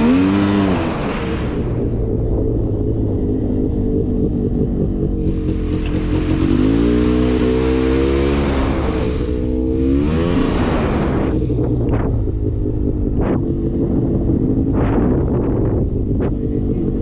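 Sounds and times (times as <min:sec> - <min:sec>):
atv engine revving: 0:00.0 - 0:17.0
rushing noise: 0:05.1 - 0:12.3.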